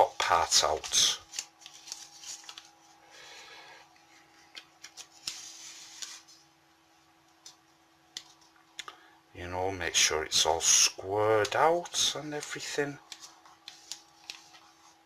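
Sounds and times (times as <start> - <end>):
faint steady hum: 0.0 - 15.0
paper rustling and crinkling: 0.1 - 3.0, 4.0 - 6.5, 13.0 - 15.0.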